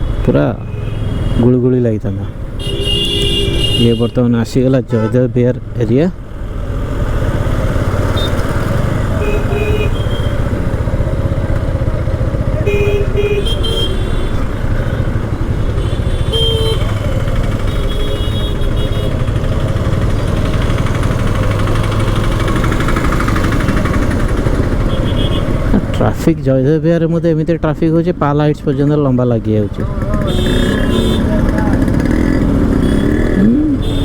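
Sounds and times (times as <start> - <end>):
vehicle horns beeping: 0.0 - 1.7, 2.5 - 5.4, 8.1 - 10.8, 12.5 - 20.0, 24.7 - 25.7, 30.0 - 34.0
motorbike engine rumble: 6.8 - 26.0, 29.7 - 34.0.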